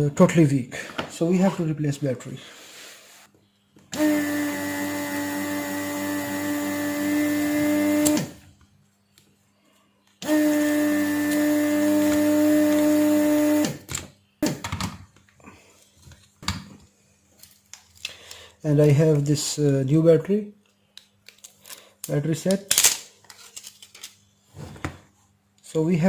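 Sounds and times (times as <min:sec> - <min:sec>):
hair trimmer motor humming: 0:04.0 - 0:08.4, 0:10.2 - 0:13.7.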